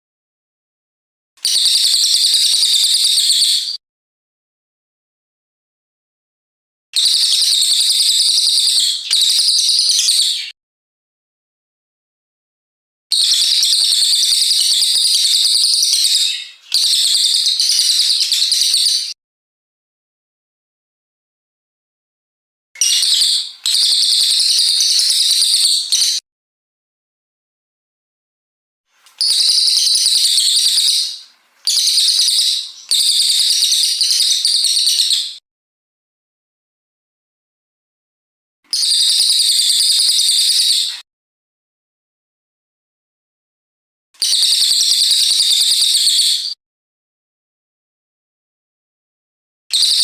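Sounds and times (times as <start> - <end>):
songbird high-pitched trills: 7.0 - 10.6, 13.2 - 19.2, 22.8 - 26.2, 29.1 - 35.4, 38.7 - 41.0, 44.2 - 46.6.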